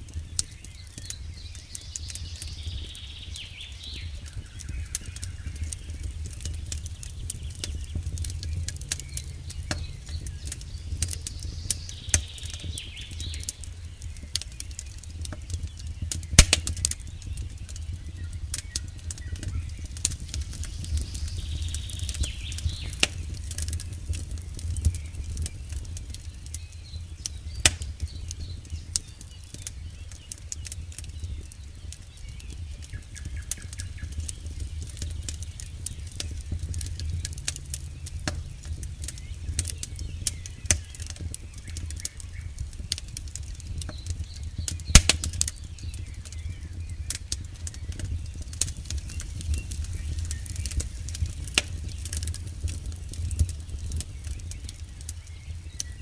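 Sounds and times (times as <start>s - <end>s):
burning wood crackling: 0.0s - 56.0s
low rumble of flames: 0.0s - 56.0s
loud sharp pops: 16.1s - 17.1s, 27.3s - 28.3s, 42.9s - 45.6s, 47.1s - 54.1s.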